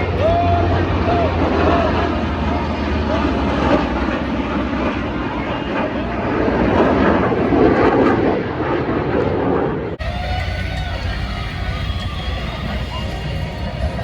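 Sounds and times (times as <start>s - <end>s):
jet passing overhead: 0.0s - 14.0s.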